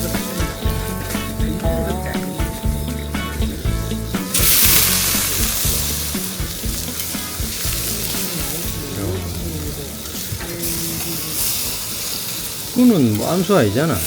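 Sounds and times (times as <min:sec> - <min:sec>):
meat sizzling on a grill: 0:00.0 - 0:14.0.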